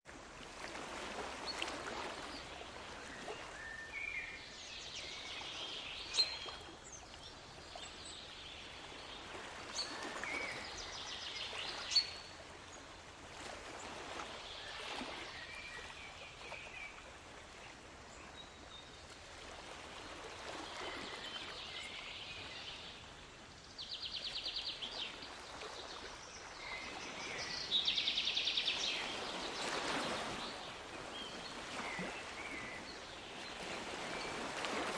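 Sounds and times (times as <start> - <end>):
sea waves washing: 24.8 - 34.9.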